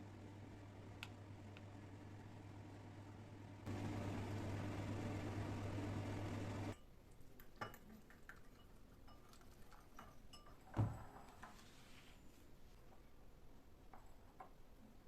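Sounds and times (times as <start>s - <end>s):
kitchen appliance humming: 0.0s - 6.8s
dishes and utensils clinking: 7.5s - 10.8s.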